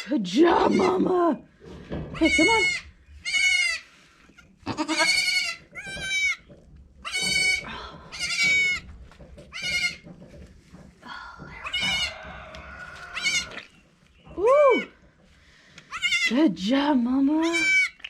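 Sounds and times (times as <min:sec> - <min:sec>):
goat kids bleating: 0:02.2 - 0:06.4, 0:07.0 - 0:08.8, 0:12.8 - 0:13.6, 0:15.9 - 0:16.3, 0:17.4 - 0:18.0.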